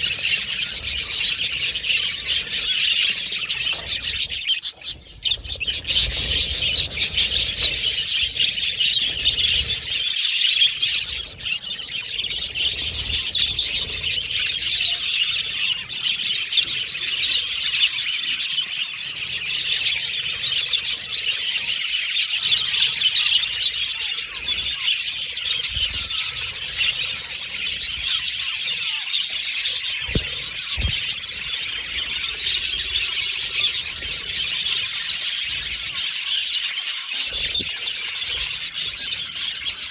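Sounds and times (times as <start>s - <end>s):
flock of budgies chattering: 0.0s - 39.9s.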